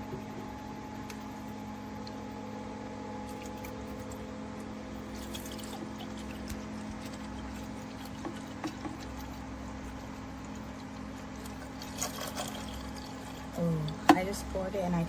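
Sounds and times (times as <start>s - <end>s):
fan humming: 0.0s - 15.0s
water pouring into tank: 5.0s - 14.5s
water trickling and dripping: 5.0s - 15.0s.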